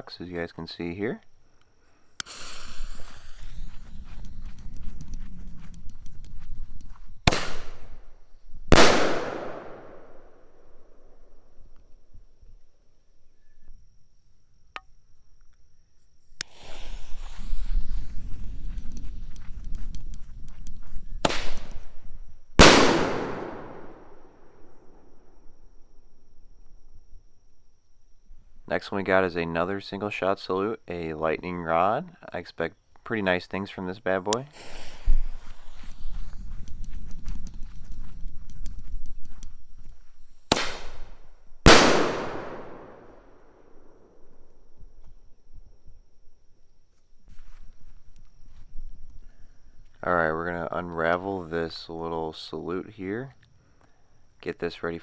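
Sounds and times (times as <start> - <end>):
firework launch crack: 2.2 - 4.0, 7.2 - 8.0, 8.7 - 10.3, 16.4 - 18.6, 21.2 - 22.0, 22.6 - 24.4, 34.3 - 36.9, 40.4 - 43.4
firework bang echoing: 7.3 - 8.0, 8.7 - 10.2, 22.6 - 24.2, 40.5 - 43.2
firework launch pop: 34.5 - 36.3, 40.5 - 41.1.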